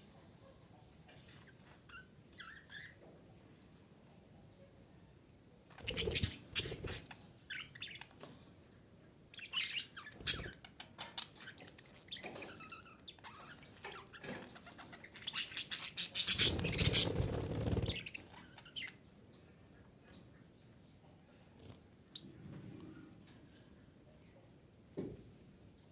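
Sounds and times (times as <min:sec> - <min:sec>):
budgerigar chirping and chattering: 0:05.8 - 0:06.9, 0:09.4 - 0:10.6, 0:14.8 - 0:19.0.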